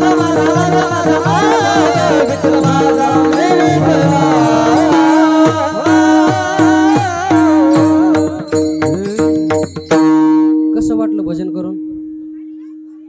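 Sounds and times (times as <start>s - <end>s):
voices singing devotional song: 0.0s - 9.4s
held drone tones: 0.0s - 9.9s
fast drum beat: 0.0s - 10.2s.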